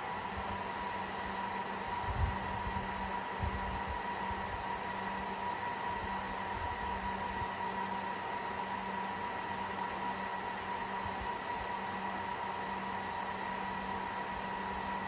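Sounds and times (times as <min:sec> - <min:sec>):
server cooling fans running: 0:00.0 - 0:15.0.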